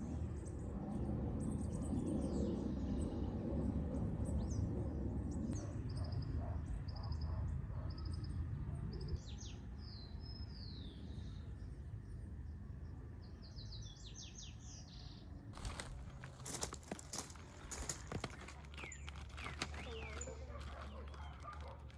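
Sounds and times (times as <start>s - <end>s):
birds singing: 5.5s - 11.6s, 13.3s - 21.9s.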